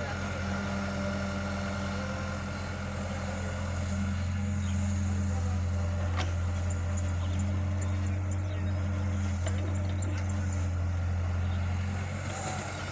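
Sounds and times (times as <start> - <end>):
tractor engine idling: 0.0 - 12.9.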